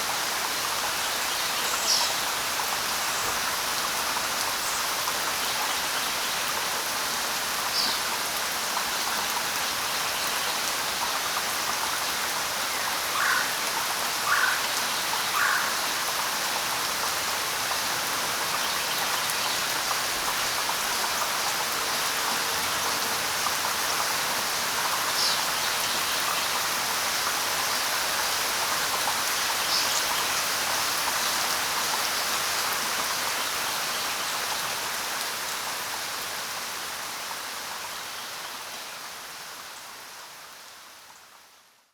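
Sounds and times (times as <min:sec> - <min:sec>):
light rain falling: 0:00.0 - 0:41.9
bird calls: 0:14.2 - 0:15.8.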